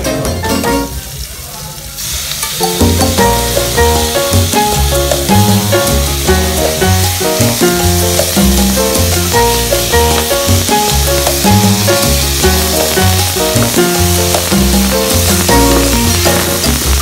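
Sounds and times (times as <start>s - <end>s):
background music with bass line: 0.0s - 1.0s, 2.6s - 17.0s
chicken sizzling in a pan: 0.7s - 17.0s.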